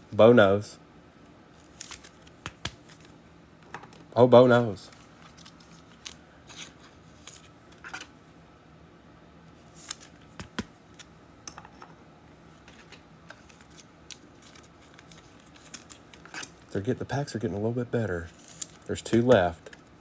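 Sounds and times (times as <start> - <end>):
trading cards shuffled by hand: 1.6 - 3.1, 4.9 - 8.1, 9.7 - 11.1, 12.6 - 16.7, 18.3 - 20.0.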